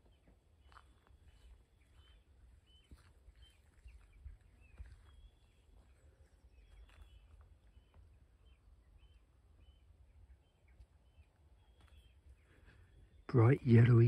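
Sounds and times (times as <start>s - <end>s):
warbler calls: 0.0s - 14.0s.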